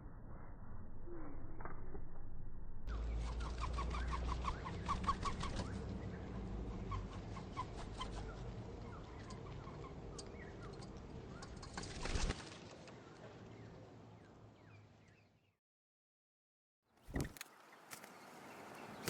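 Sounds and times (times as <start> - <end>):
birds chirping: 17.1 - 19.0.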